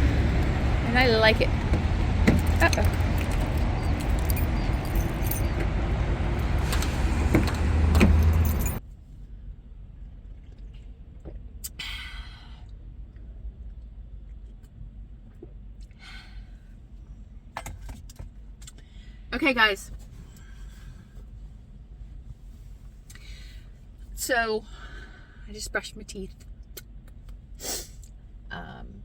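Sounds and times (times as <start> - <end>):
vehicle engines idling: 0.0 - 8.8
keys jangling: 2.4 - 5.8, 7.4 - 8.8.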